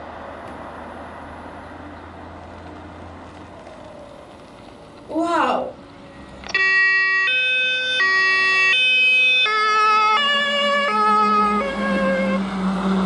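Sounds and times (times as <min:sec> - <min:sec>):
vehicle rumble: 0:00.0 - 0:13.0
two-tone fire truck siren: 0:06.4 - 0:13.0.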